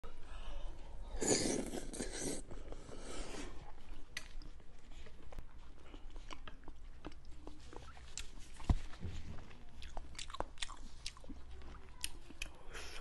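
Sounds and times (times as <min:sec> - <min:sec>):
close chewing with mouth clicks: 0:03.6 - 0:13.0.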